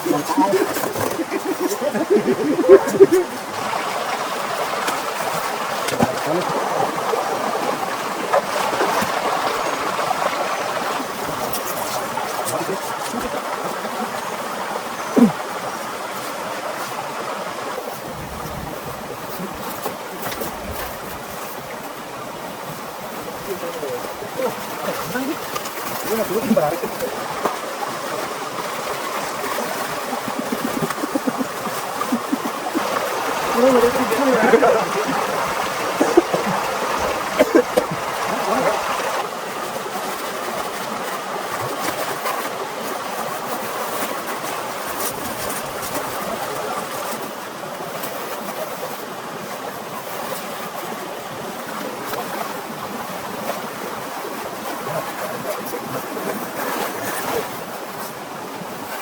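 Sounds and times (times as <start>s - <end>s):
heavy rain: 0.0s - 48.1s
rushing water: 0.0s - 59.0s.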